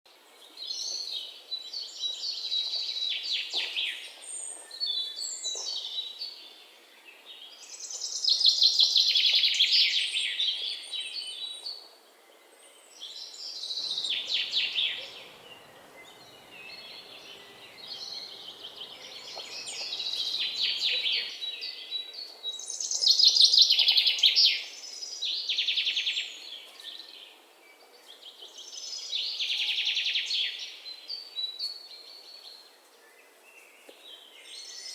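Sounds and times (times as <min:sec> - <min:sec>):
songbirds singing trills: 0:09.5 - 0:34.9.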